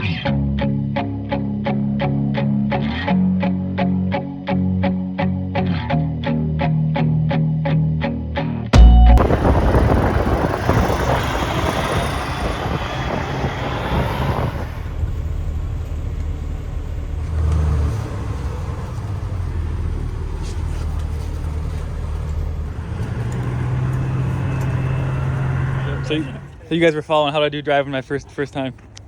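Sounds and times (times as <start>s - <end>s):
diesel truck engine idling: 8.8s - 28.6s.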